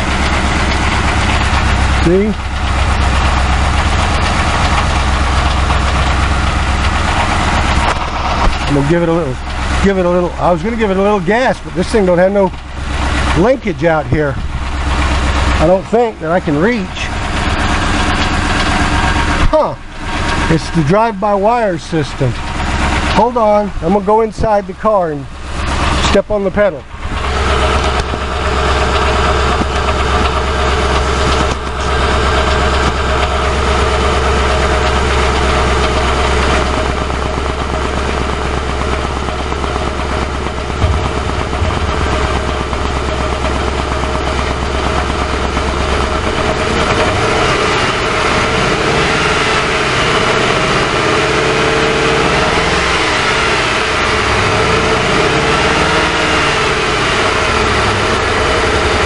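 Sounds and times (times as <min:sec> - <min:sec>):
car engine idling roughly: 0:00.0 - 0:59.0.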